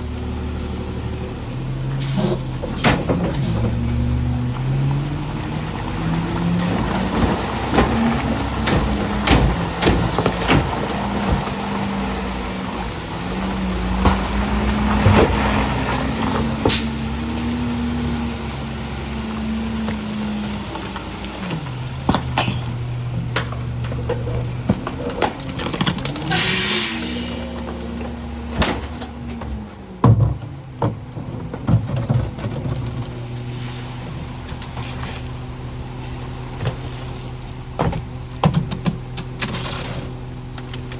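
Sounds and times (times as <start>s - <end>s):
garbage truck engine revving: 0.0s - 40.9s
sharp hiss of air: 26.3s - 27.5s.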